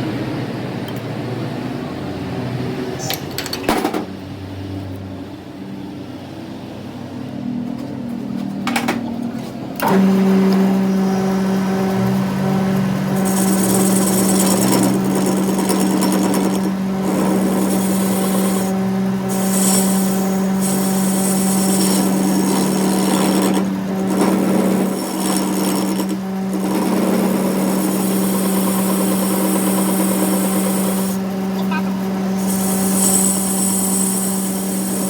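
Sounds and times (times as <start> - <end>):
power tool humming and grinding: 9.8 - 35.0.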